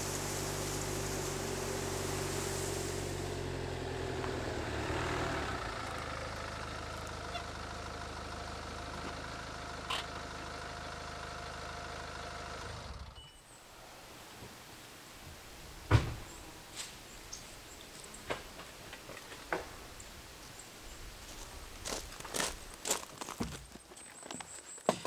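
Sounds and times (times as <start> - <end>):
car engine running: 0.0 - 12.6.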